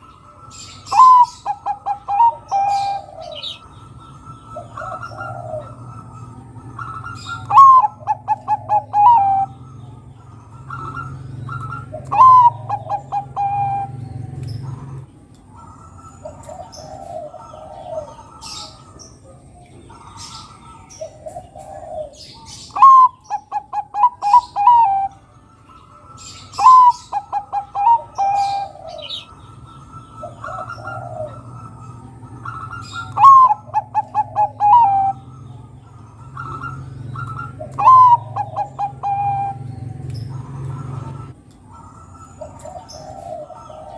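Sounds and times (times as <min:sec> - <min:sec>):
small birds chirping faintly: 0:00.0 - 0:43.9
zebra dove cooing: 0:00.0 - 0:43.9.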